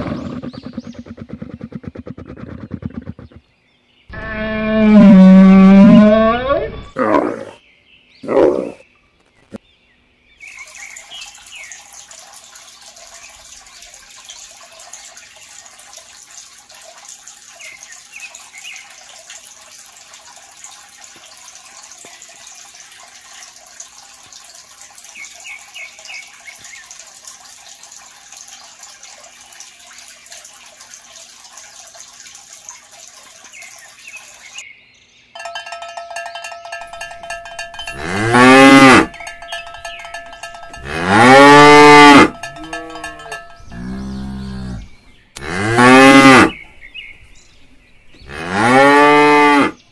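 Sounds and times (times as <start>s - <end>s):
cow mooing: 4.1s - 7.5s, 37.2s - 46.6s, 48.2s - 49.8s
steady ringing tones: 35.4s - 44.4s.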